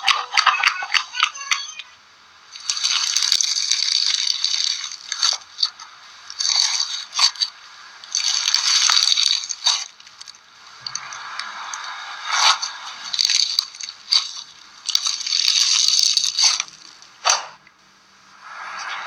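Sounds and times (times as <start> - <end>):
slime crackling when squeezed: 2.6 - 17.4.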